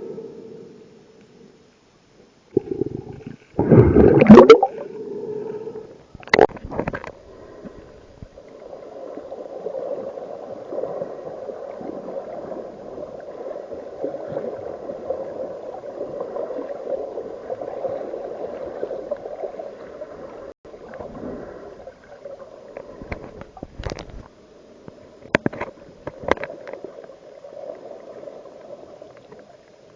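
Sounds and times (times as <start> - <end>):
underwater gurgling rush: 2.5 - 5.1.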